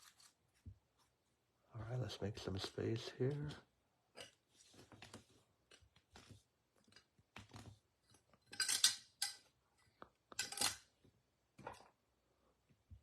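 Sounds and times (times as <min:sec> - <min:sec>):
cards rustling and scraping on table: 0:04.2 - 0:06.5.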